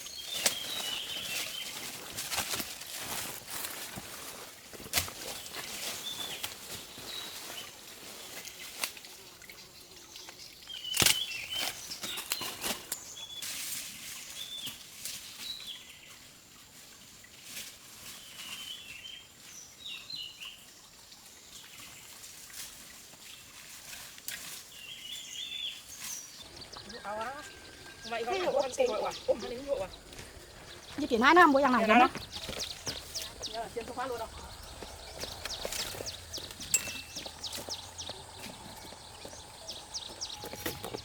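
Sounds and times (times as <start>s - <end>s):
outdoor ambience: 0.0s - 15.5s, 25.8s - 41.0s
birds chirping: 26.1s - 41.0s.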